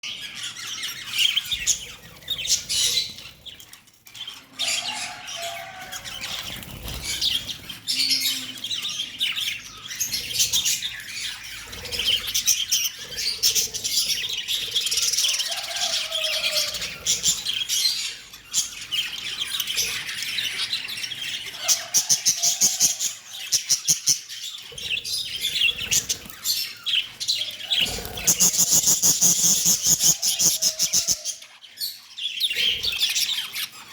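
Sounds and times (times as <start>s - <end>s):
lovebirds chirping and squawking: 0.0s - 33.9s
fast clicking bird chatter: 25.0s - 31.3s.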